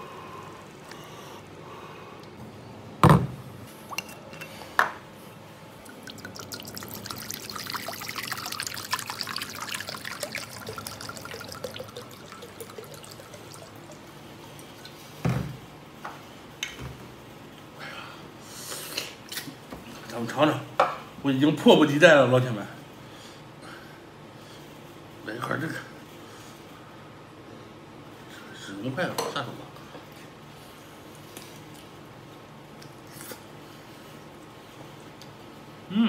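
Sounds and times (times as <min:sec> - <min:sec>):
stew pouring and dripping: 0:05.8 - 0:15.2.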